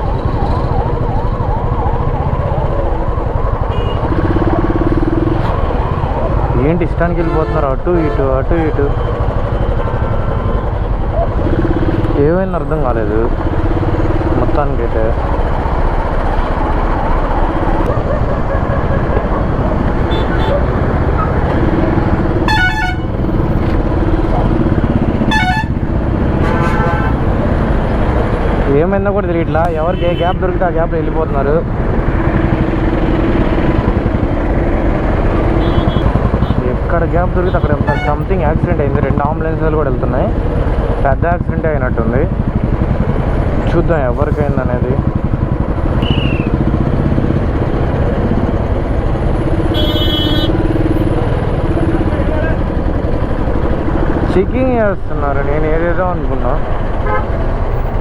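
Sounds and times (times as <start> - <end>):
motorcycle engine running: 0.0 - 6.6, 8.9 - 28.8, 31.6 - 58.0
road noise: 0.0 - 58.0
vehicle horn honks: 3.7 - 4.0, 20.1 - 20.6, 22.5 - 23.1, 25.3 - 25.8, 26.4 - 27.3, 35.6 - 36.6, 37.8 - 38.2, 46.0 - 46.5, 49.7 - 50.6, 57.0 - 57.3.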